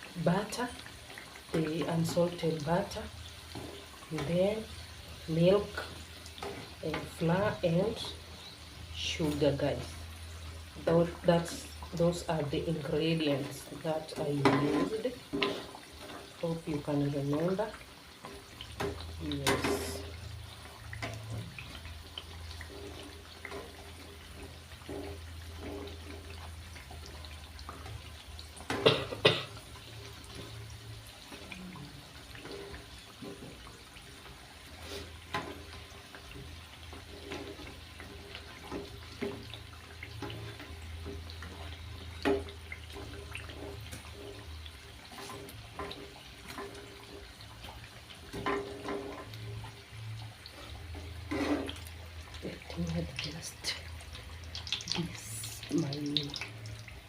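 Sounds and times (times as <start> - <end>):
dough sizzling in hot oil: 0.0 - 57.0.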